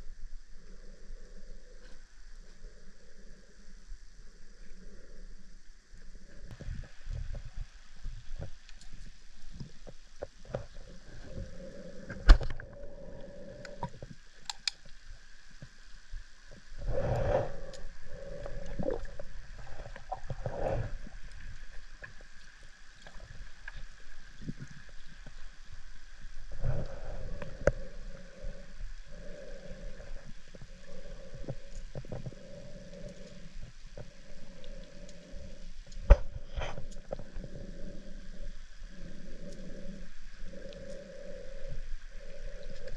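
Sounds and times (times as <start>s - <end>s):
small clicks: 13.6s - 15.0s.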